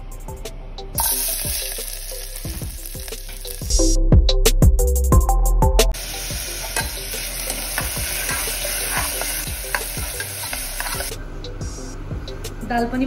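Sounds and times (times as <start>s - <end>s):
lentils sizzling in hot oil: 1.0s - 3.8s, 6.0s - 11.1s
spoon scraping a pot: 6.7s - 11.1s.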